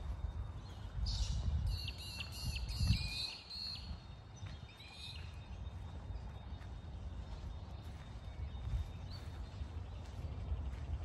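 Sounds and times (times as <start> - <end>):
steady low rumble: 3.9 - 11.0.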